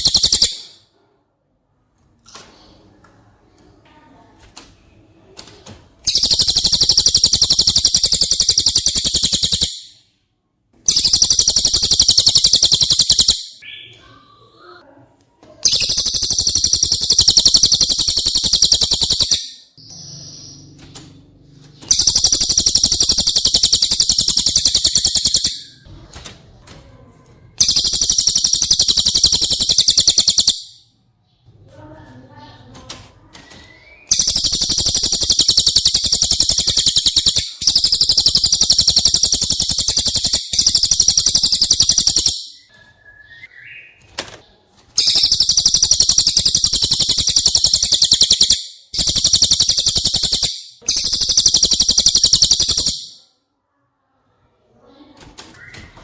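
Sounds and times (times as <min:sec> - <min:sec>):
bird fast high trills: 0:06.1 - 0:09.8, 0:10.9 - 0:13.9, 0:15.7 - 0:20.6, 0:21.9 - 0:25.8, 0:27.6 - 0:30.8, 0:34.1 - 0:42.6, 0:45.0 - 0:53.2.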